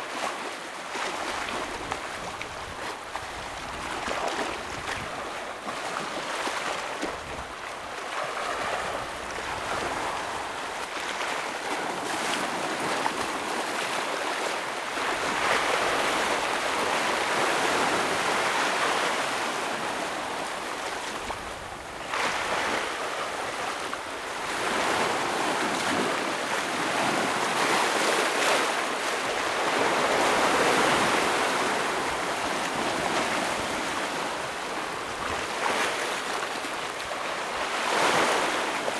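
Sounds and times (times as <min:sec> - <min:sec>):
ocean waves breaking on rocks: 0:00.1 - 0:38.9.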